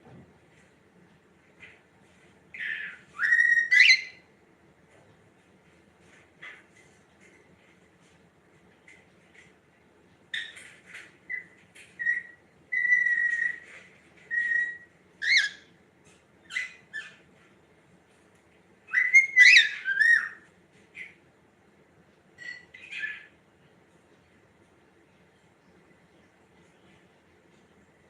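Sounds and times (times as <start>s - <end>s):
cockatiel whistling and chirping: 2.6s - 4.2s, 11.3s - 13.7s, 14.3s - 15.6s, 18.9s - 20.4s.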